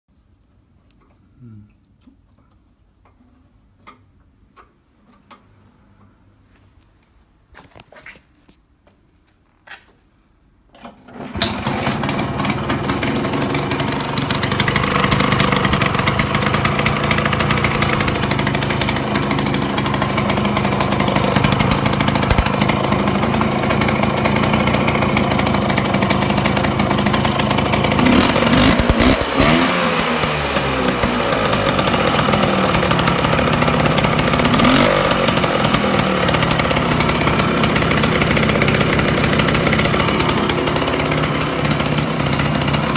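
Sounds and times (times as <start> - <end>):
scooter engine running: 11.2 - 42.9
starter clicks: 14.9 - 23.2.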